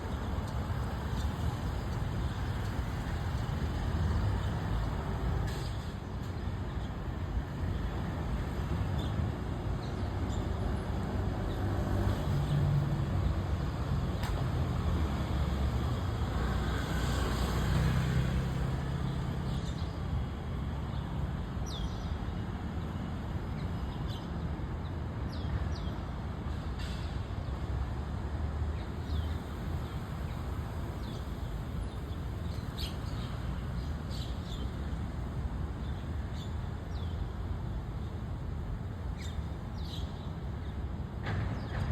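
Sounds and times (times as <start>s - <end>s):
low traffic rumble: 0.0s - 41.9s
starlings chirping: 29.0s - 37.2s, 39.1s - 40.8s.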